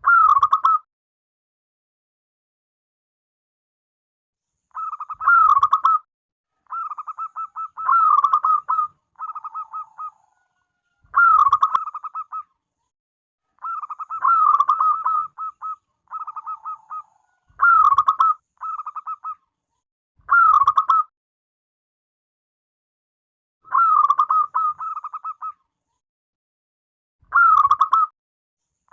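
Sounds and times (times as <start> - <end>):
dove cooing staccato: 0.0 - 0.8, 4.7 - 6.0, 6.7 - 12.5, 13.6 - 19.4, 20.3 - 21.1, 23.7 - 25.6, 27.3 - 28.1.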